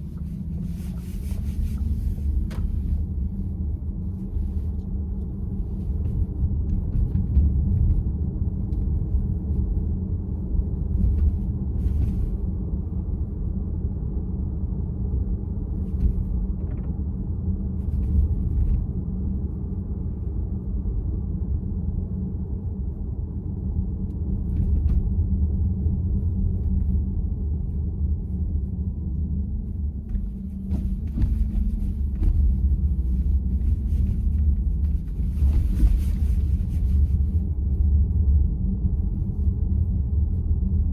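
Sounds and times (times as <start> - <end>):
road and tyre rumble in car: 0.0 - 40.9.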